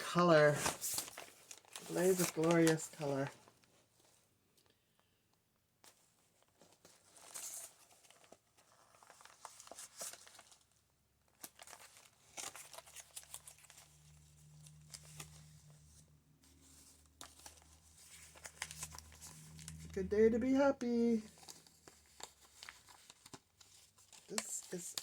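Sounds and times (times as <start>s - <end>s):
paper pages rustling and crinkling: 0.0s - 4.2s, 5.8s - 25.0s.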